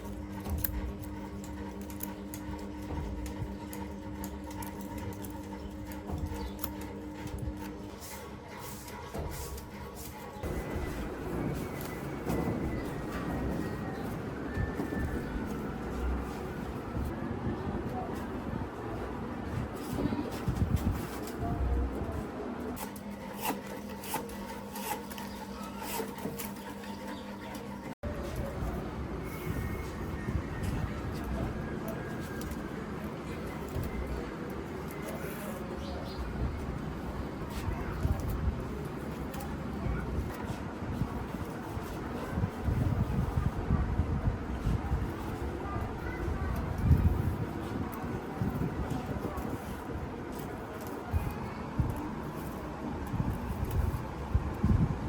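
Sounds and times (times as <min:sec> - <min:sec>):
rubbing and scraping: 0:00.0 - 0:17.1, 0:19.5 - 0:31.5
machine hum: 0:00.0 - 0:33.3.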